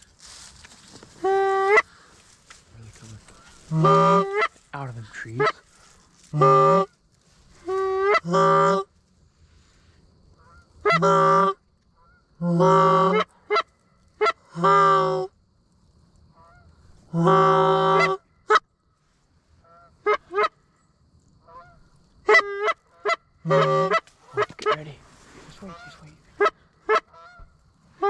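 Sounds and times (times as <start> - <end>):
geese honking: 1.1 - 2.3, 2.9 - 6.9, 7.6 - 8.9, 10.4 - 15.3, 16.4 - 18.6, 19.6 - 20.6, 21.4 - 28.0
geese clucking: 1.1 - 6.9, 7.6 - 8.9, 10.4 - 15.3, 16.4 - 18.6, 19.6 - 20.6, 21.4 - 28.0.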